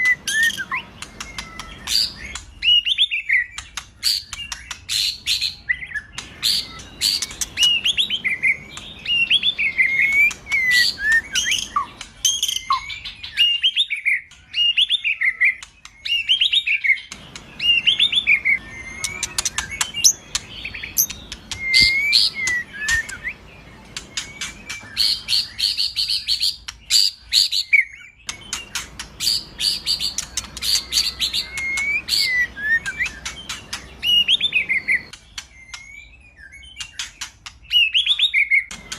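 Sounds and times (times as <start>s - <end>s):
bird singing whistled phrases: 0.0s - 38.9s.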